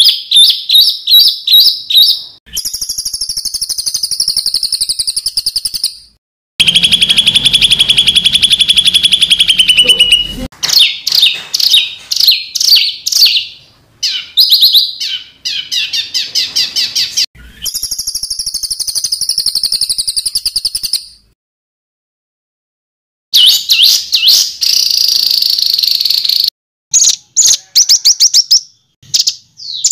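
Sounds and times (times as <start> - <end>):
songbird trilling: 6.6 - 21.0.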